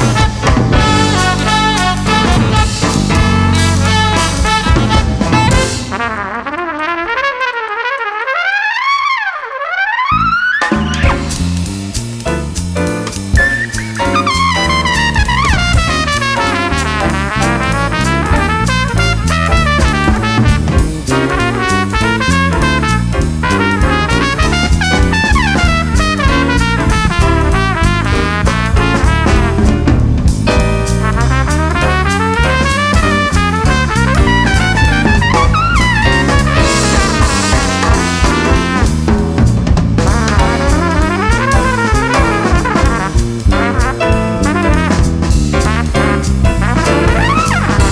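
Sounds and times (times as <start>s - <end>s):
drum kit: 0.0s - 8.3s, 10.6s - 47.9s
jazz band playing: 0.0s - 47.9s
trumpet melody: 0.0s - 47.9s.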